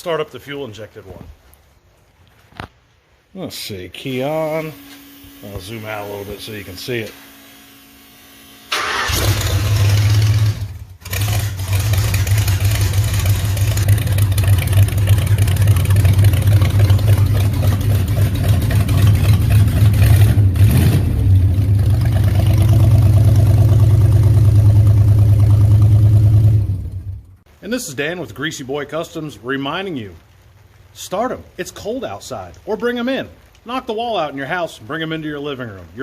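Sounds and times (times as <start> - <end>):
car engine idling: 7.4 - 27.5.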